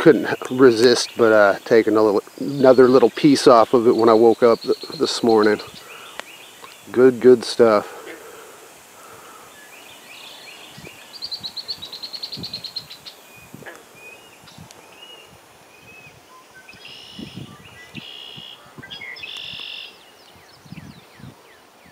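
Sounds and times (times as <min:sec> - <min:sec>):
songbirds singing: 0:00.0 - 0:21.9
short buzzy bird calls: 0:16.8 - 0:20.0.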